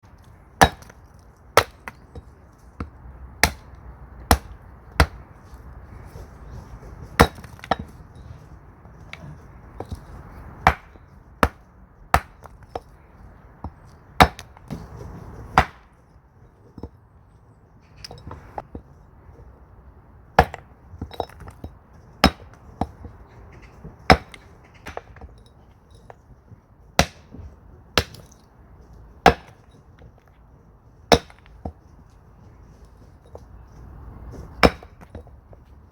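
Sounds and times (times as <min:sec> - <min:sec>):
axe splitting firewood: 0:00.1 - 0:16.1, 0:20.3 - 0:23.2, 0:23.9 - 0:26.2, 0:26.9 - 0:28.4, 0:29.0 - 0:32.0, 0:32.8 - 0:35.7.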